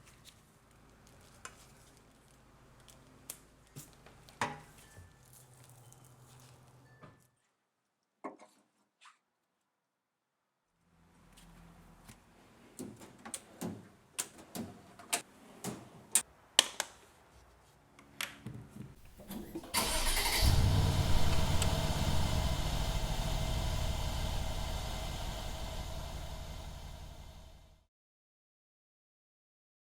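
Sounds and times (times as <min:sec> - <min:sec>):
car engine cranking and starting: 0:19.1 - 0:27.8.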